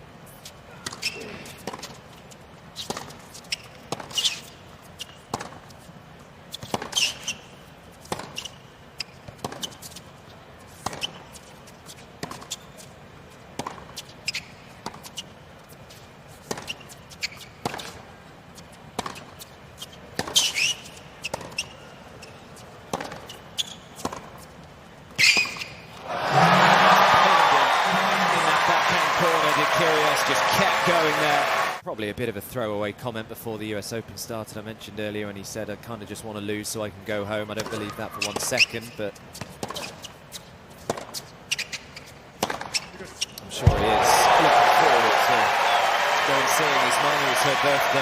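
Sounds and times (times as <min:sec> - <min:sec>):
tennis ball and racket strikes: 0:00.8 - 0:02.0, 0:02.8 - 0:05.8, 0:06.6 - 0:07.4, 0:08.0 - 0:10.0, 0:10.7 - 0:12.9, 0:13.5 - 0:15.3, 0:16.4 - 0:18.0, 0:18.6 - 0:22.2, 0:22.9 - 0:24.5, 0:37.6 - 0:38.6, 0:39.3 - 0:42.9
crowd cheering and applause: 0:26.0 - 0:31.8, 0:43.5 - 0:48.0.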